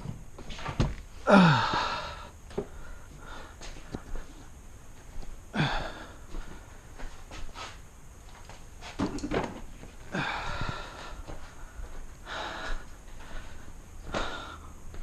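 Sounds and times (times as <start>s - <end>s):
person breathing hard: 1.1s - 4.5s, 5.5s - 7.8s, 10.0s - 15.0s.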